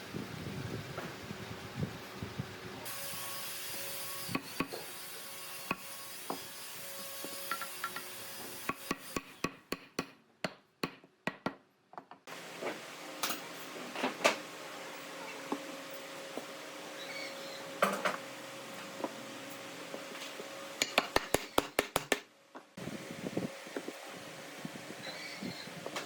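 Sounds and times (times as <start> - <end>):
knocks and taps on wood: 20.8 - 22.2.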